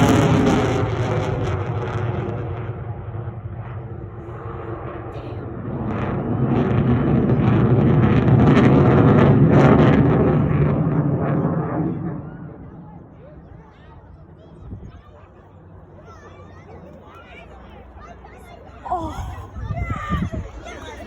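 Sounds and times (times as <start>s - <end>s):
fighter jet flying past: 0.0s - 13.6s.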